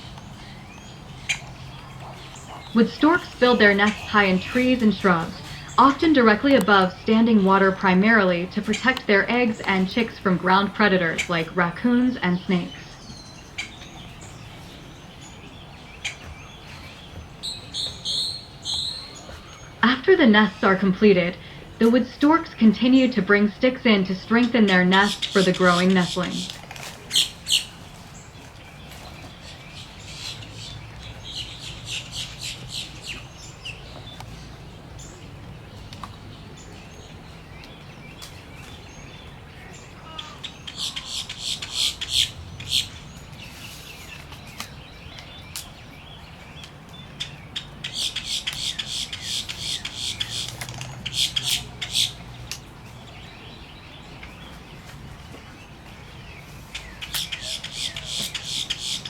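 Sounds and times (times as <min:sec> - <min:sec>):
nestlings squawking begging calls: 0:17.4 - 0:19.7, 0:23.8 - 0:27.8, 0:29.8 - 0:33.5, 0:40.0 - 0:43.1, 0:47.2 - 0:52.2, 0:56.8 - 0:59.0.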